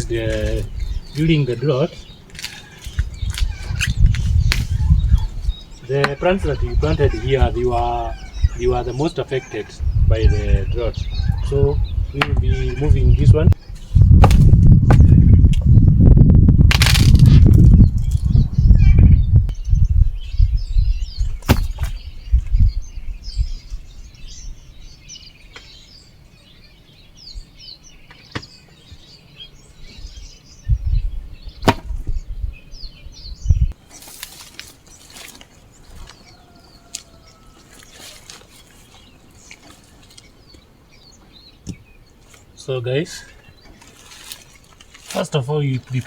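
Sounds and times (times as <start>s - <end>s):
birds chirping: 0.0s - 46.0s
tool striking plant stems and soil: 2.3s - 4.8s, 14.2s - 15.6s, 16.7s - 17.5s, 21.4s - 22.0s, 31.6s - 32.0s, 33.9s - 36.2s, 43.8s - 46.0s
dull thuds: 14.0s - 15.7s, 21.3s - 22.0s, 31.6s - 32.2s.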